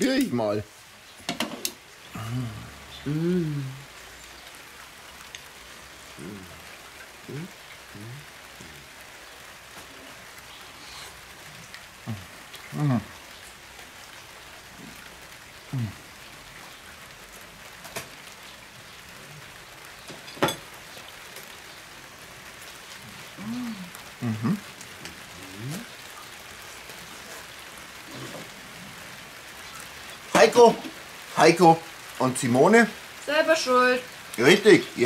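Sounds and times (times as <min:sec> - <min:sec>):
light rain hissing: 0:00.0 - 0:35.0
people humming while eating: 0:02.1 - 0:03.9, 0:06.2 - 0:08.8, 0:12.1 - 0:13.1, 0:15.7 - 0:16.0, 0:23.3 - 0:24.7, 0:25.4 - 0:25.9.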